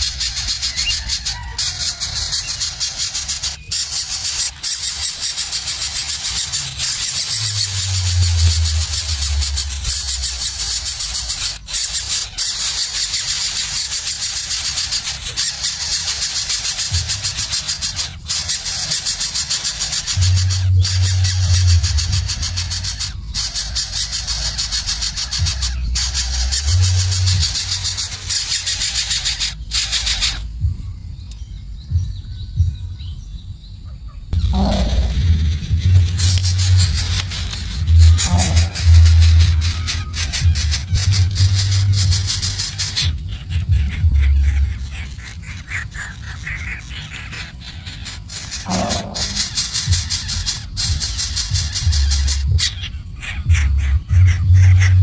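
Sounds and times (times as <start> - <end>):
loud pulsing hiss: 0.0 - 31.0, 34.4 - 55.0
baby birds begging calls: 0.0 - 55.0
low thumps: 6.8 - 11.6, 20.2 - 23.4, 34.4 - 44.9.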